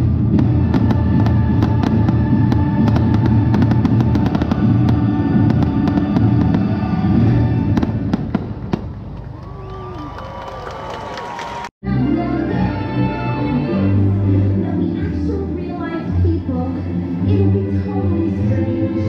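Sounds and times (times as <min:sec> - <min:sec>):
music playing: 0:00.0 - 0:08.4, 0:11.8 - 0:19.0
fireworks cracking: 0:00.0 - 0:09.3.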